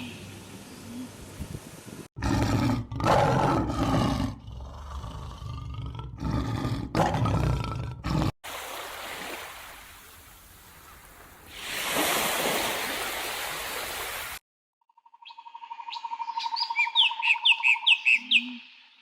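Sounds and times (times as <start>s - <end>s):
large animal roaring: 2.2s - 8.3s.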